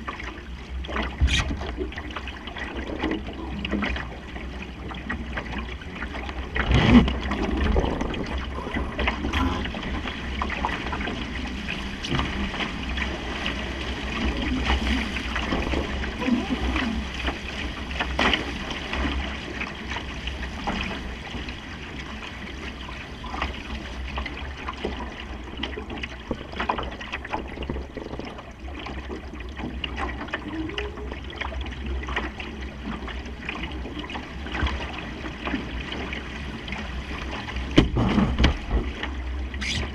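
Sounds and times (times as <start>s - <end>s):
wind rumbling on microphone: 0.0s - 23.9s
water rushing along a boat hull: 0.0s - 39.9s.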